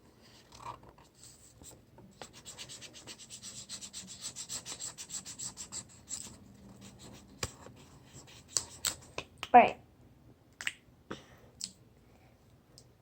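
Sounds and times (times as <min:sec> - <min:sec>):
marker scribbling on paper: 0:01.2 - 0:09.2.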